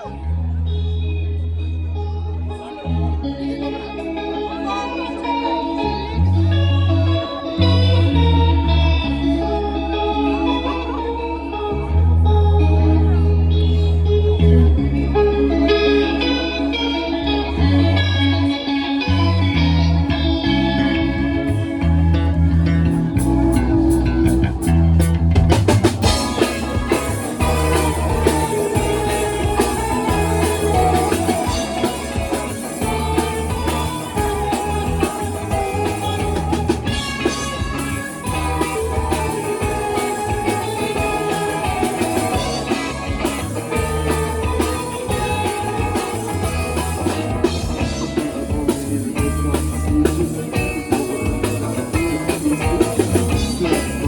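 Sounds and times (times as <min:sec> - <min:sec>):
bass guitar: 0:00.0 - 0:54.0
electric guitar: 0:00.0 - 0:54.0
drum kit: 0:22.8 - 0:54.0.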